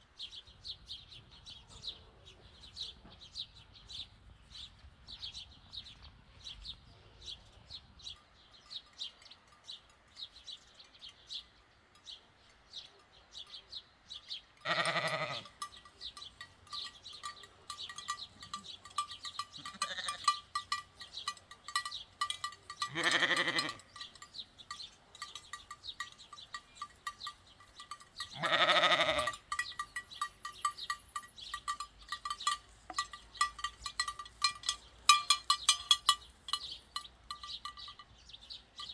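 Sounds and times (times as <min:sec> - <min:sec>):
sheep bell clanking: 0:08.0 - 0:38.9
sheep bleating: 0:14.6 - 0:15.5, 0:19.6 - 0:20.3, 0:22.9 - 0:23.8, 0:28.3 - 0:29.4.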